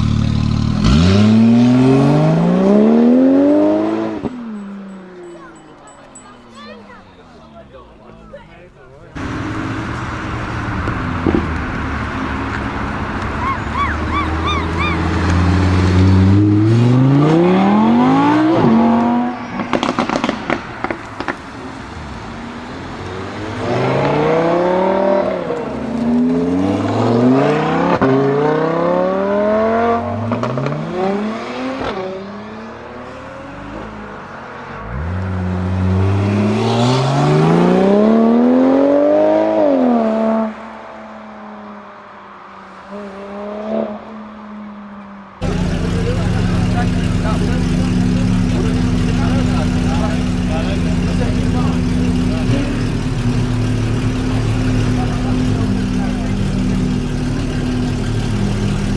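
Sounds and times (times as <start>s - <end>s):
car engine accelerating hard: 0.0s - 4.8s, 9.2s - 41.7s, 45.4s - 58.9s
exhaust crackles: 4.4s - 27.1s, 45.4s - 58.9s.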